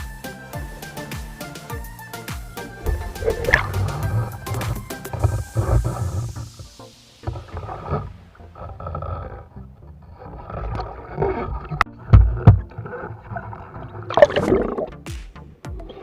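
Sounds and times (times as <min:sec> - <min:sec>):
underwater rumbling and bubbling: 0:02.6 - 0:15.0
heavy thumps: 0:02.7 - 0:08.2
knocks and clicks: 0:02.8 - 0:06.5.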